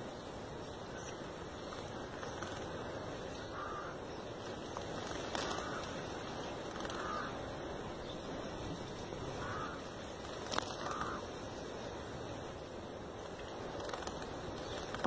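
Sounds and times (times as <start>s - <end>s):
outdoor hiss: 0.0s - 15.0s
bird calling: 0.6s - 11.4s.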